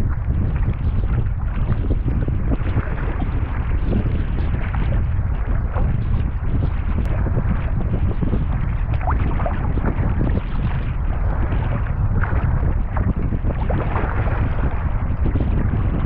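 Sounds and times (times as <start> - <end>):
rough water splashing: 0.0 - 16.0
wind buffeting microphone: 0.0 - 16.0.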